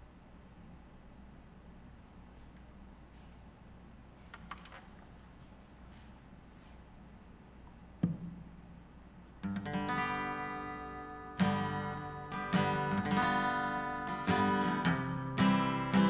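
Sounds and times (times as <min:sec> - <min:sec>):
acoustic guitar strumming chords: 0:09.4 - 0:16.0.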